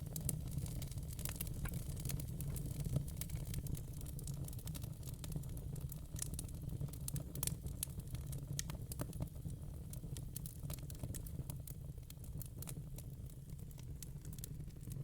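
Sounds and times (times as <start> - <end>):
fire crackling: 0.0 - 15.0.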